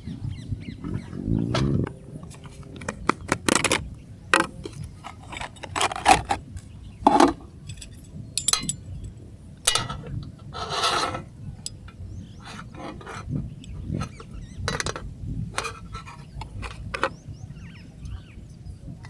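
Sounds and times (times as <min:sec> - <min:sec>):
scraping rustle: 0:10.6 - 0:11.3.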